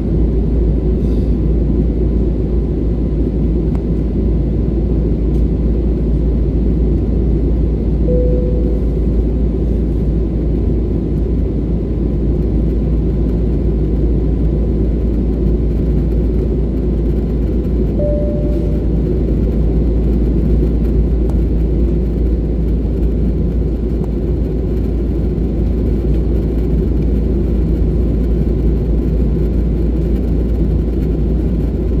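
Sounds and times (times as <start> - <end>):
aircraft cabin engine rumble: 0.0 - 32.0
short single tones: 8.1 - 9.4, 18.0 - 19.2.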